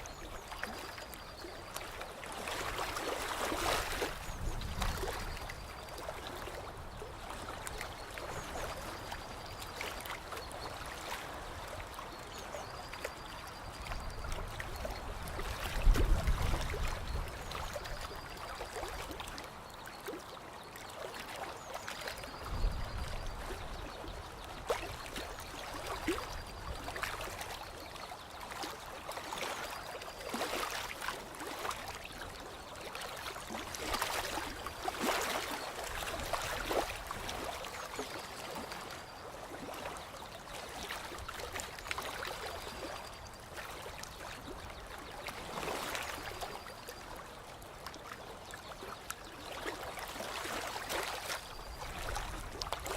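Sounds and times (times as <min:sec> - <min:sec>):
small water splashes: 0:00.0 - 0:52.9
water trickling and lapping: 0:00.0 - 0:52.9.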